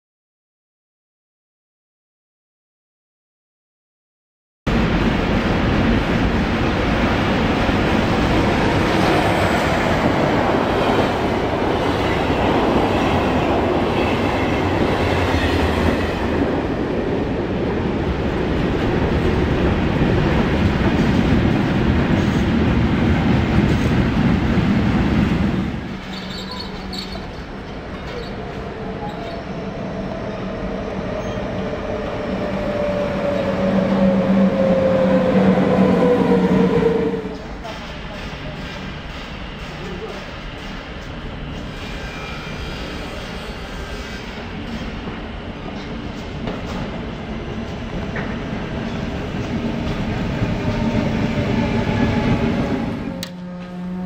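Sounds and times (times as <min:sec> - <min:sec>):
train wheels rumbling on rails: 0:04.7 - 0:54.0
electric locomotive whine: 0:25.3 - 0:54.0.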